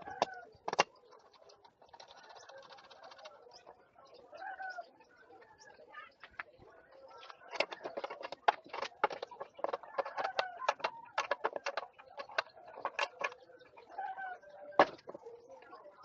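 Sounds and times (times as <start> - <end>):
sharp clicks and knocks: 0.0 - 1.0, 7.2 - 13.4, 14.8 - 15.2
birds calling faintly: 0.0 - 16.0.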